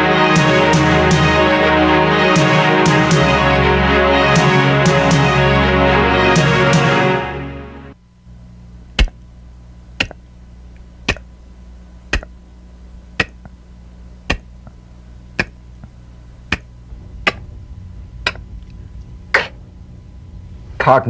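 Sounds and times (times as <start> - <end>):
steady low hum: 7.9 - 21.0.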